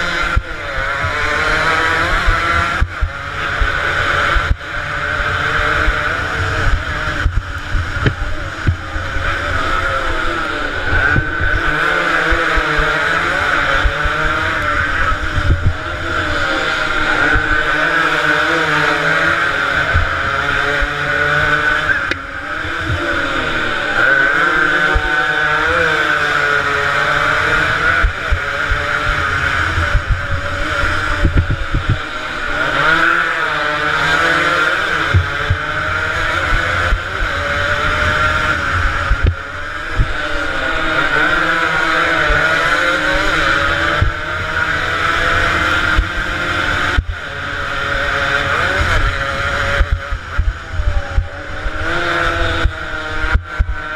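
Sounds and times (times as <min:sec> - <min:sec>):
small motorcycle engines revving: 0:00.0 - 0:53.9.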